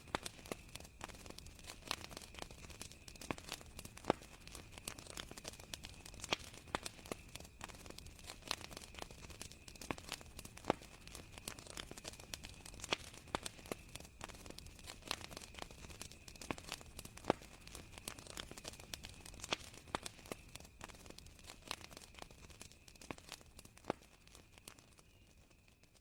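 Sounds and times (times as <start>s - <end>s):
campfire crackling: 0.0s - 26.0s
soft steady hiss: 0.0s - 26.0s.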